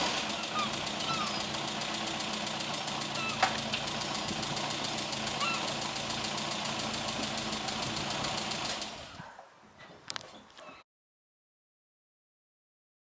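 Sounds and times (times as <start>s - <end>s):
car engine running with ticking: 0.0s - 9.1s.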